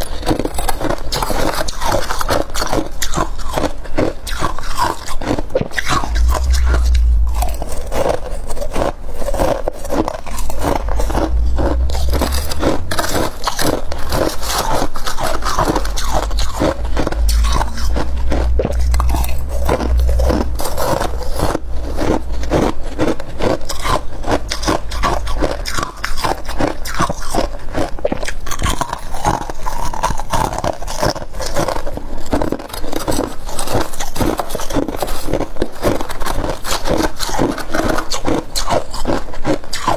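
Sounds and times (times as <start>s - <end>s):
low rumble: 5.9s - 9.4s, 10.3s - 27.6s
scraping: 10.6s - 27.0s.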